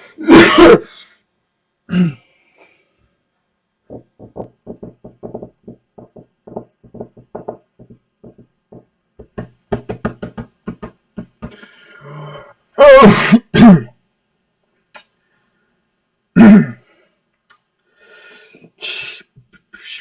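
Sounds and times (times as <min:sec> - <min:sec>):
person making percussive mouth noises: 0:03.9 - 0:11.6.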